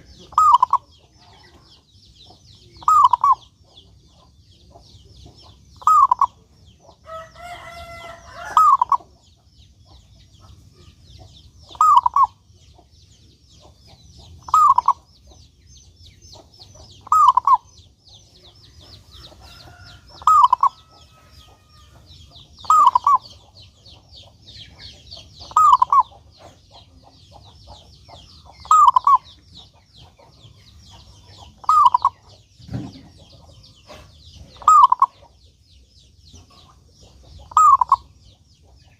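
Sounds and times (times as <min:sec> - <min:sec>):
dove cooing: 0:00.0 - 0:01.6, 0:02.8 - 0:03.5, 0:05.8 - 0:06.4, 0:07.9 - 0:09.1, 0:11.7 - 0:12.4, 0:14.5 - 0:15.0, 0:17.0 - 0:17.7, 0:19.5 - 0:21.8, 0:22.6 - 0:23.4, 0:25.5 - 0:26.6, 0:28.6 - 0:29.3, 0:31.6 - 0:33.0, 0:33.9 - 0:35.2, 0:37.5 - 0:38.1
fast high chirping: 0:22.6 - 0:23.3, 0:37.5 - 0:38.1.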